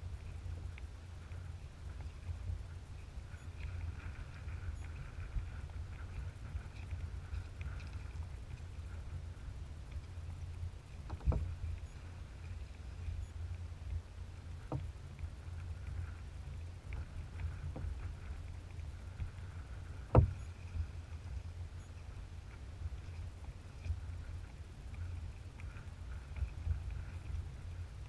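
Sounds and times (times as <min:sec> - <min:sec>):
water and hull rumble: 0:00.0 - 0:28.0
paddle knocks: 0:11.0 - 0:11.5, 0:20.1 - 0:20.4.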